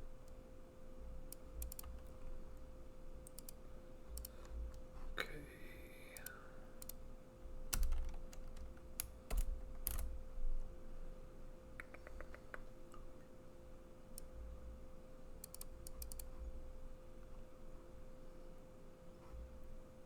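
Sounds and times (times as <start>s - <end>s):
faint hum: 0.0s - 20.0s
computer keyboard typing: 1.3s - 2.3s, 3.2s - 4.6s, 7.7s - 10.2s, 15.4s - 16.3s.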